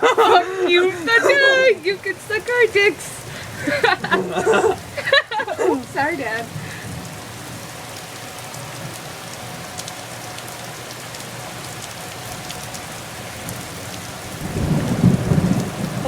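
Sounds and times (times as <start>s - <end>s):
thunder rumbling: 0.0s - 7.8s, 13.4s - 16.0s
rain falling: 0.0s - 16.0s.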